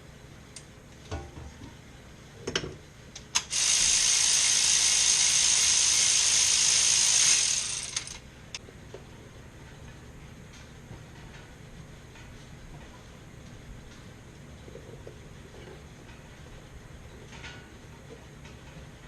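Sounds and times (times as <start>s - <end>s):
loud steady hiss: 3.4s - 8.6s.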